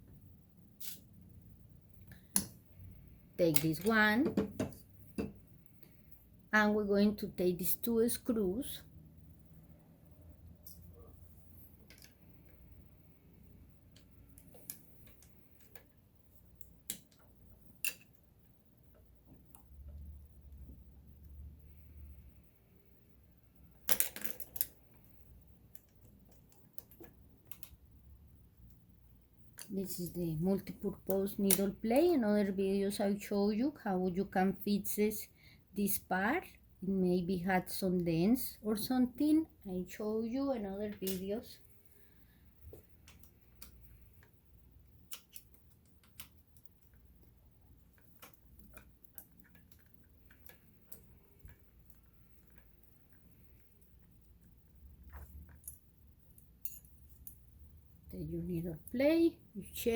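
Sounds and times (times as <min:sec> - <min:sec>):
small metal parts clicking: 0:16.6 - 0:18.2, 0:23.8 - 0:25.0, 0:55.0 - 0:57.5.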